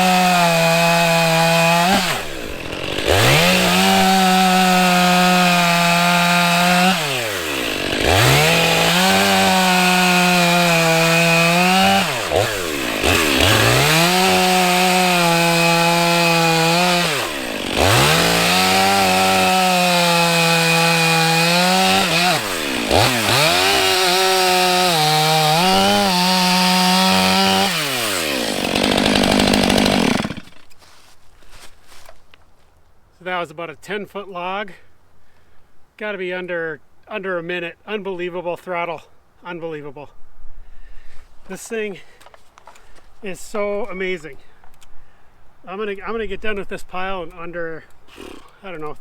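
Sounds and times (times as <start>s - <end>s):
chainsaw cutting log: 0.0s - 32.2s, 48.0s - 48.6s.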